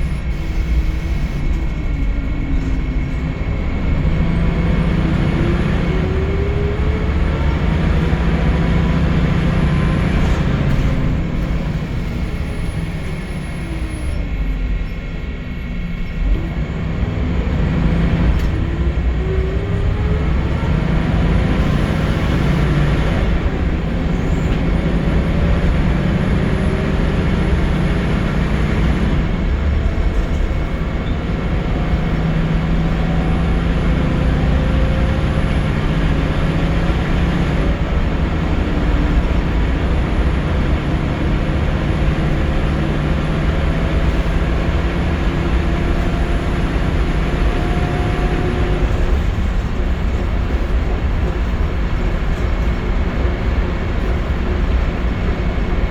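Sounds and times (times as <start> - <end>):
bus diesel engine pulling: 0.0 - 55.9
road and tyre noise: 0.0 - 55.9.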